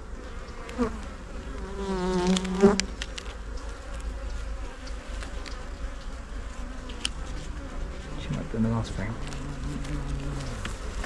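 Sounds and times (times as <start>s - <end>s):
bee buzzing close: 0.0s - 11.0s
bees humming: 0.0s - 11.0s
light clicks: 1.5s - 6.2s.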